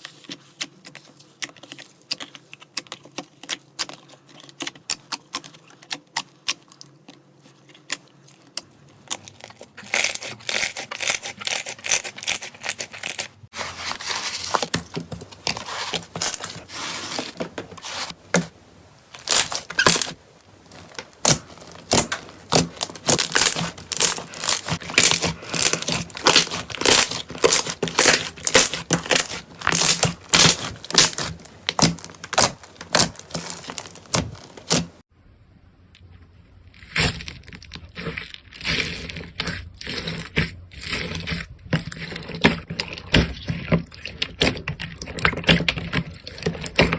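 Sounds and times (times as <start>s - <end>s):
slime crackling and popping: 19.2s - 35.0s.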